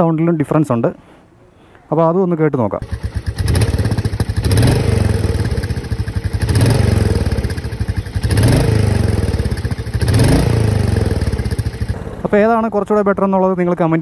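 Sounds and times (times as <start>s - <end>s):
motorcycle engine revving: 2.8s - 12.8s.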